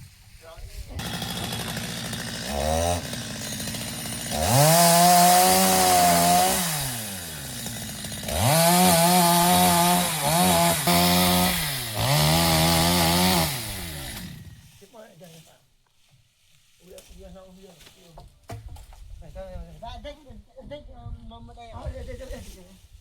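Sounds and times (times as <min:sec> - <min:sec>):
chainsaw engine revving: 0:00.9 - 0:14.7.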